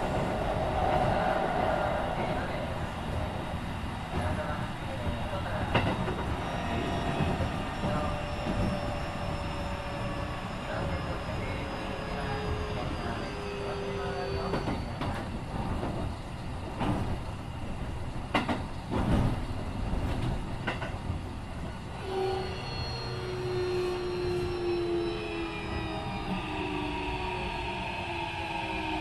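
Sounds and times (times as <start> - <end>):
train inverter whining: 0.0 - 17.0, 21.8 - 29.0
train running rumble: 0.0 - 26.9.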